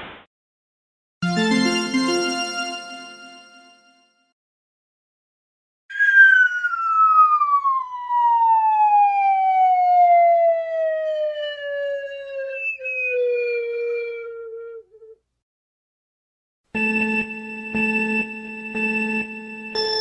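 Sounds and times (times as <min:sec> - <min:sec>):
siren winding down: 0:05.9 - 0:15.2.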